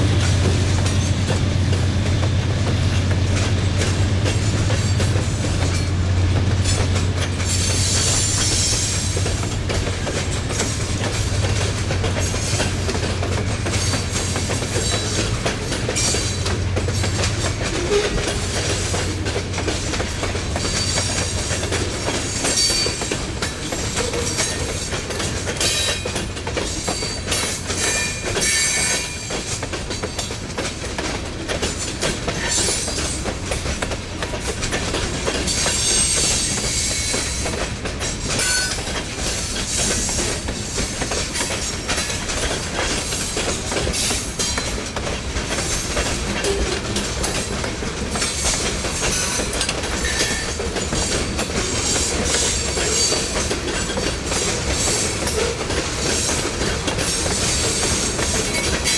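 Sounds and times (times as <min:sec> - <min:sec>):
train wheels clacking: 0:00.0 - 0:58.9
high wheel squeal: 0:06.7 - 0:09.2, 0:20.6 - 0:23.2, 0:26.8 - 0:29.3, 0:35.4 - 0:37.6, 0:38.2 - 0:39.0, 0:48.3 - 0:58.9.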